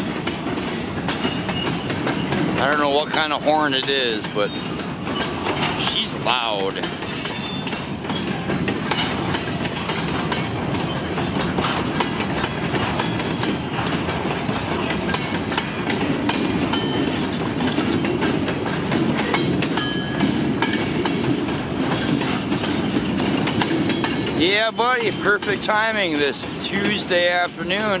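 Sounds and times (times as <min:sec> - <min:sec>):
steel wheels clacking over rail joints: 0:00.0 - 0:28.0
high wheel squeals: 0:07.1 - 0:08.3, 0:09.5 - 0:10.1.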